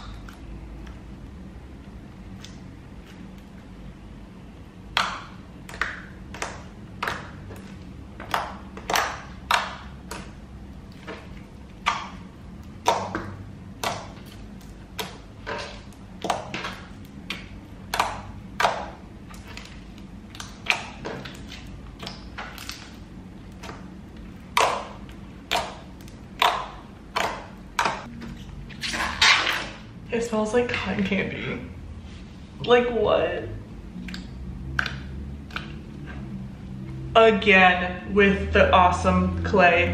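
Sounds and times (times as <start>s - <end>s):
slime clicking and popping: 4.8s - 28.2s.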